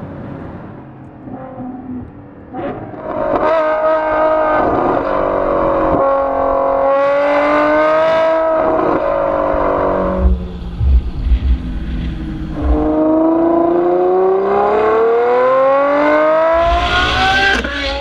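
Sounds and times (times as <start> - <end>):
sports car engine accelerating: 0.0 - 18.0.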